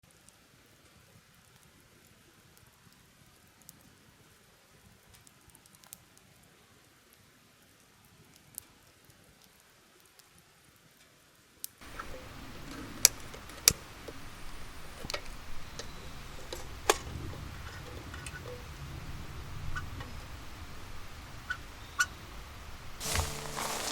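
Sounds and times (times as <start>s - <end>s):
campfire crackling and popping: 23.0s - 23.9s.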